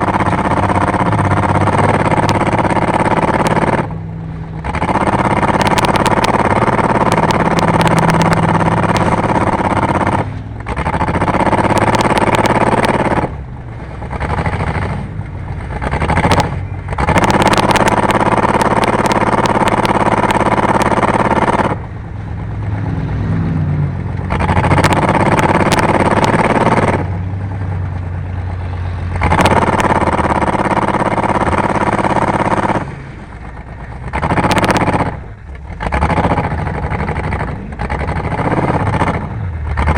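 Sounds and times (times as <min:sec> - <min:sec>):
rattling clatter: 0:00.0 - 0:21.9, 0:24.0 - 0:39.9
race car engine revving: 0:00.0 - 0:39.9.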